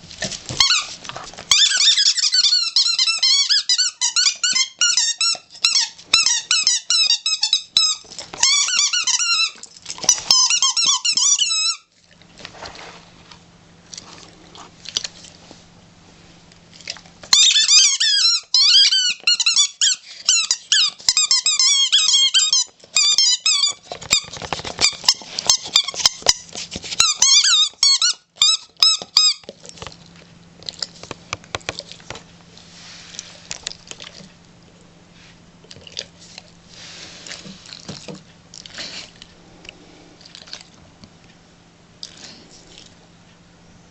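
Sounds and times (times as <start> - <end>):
dog gnawing and clicking: 0.2 - 11.7, 13.9 - 15.4, 16.5 - 32.6
rubber ball squeaking: 0.5 - 11.9, 17.3 - 29.5.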